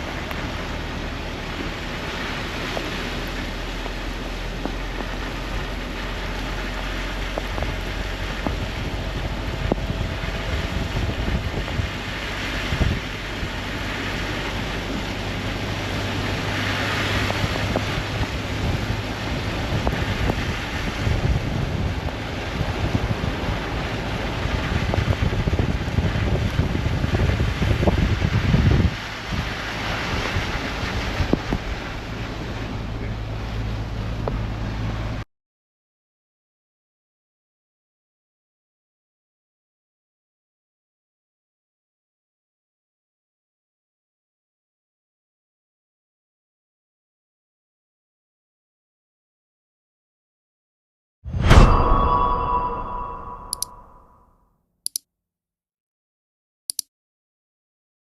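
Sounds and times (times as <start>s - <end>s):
wind buffeting microphone: 0.0s - 35.1s.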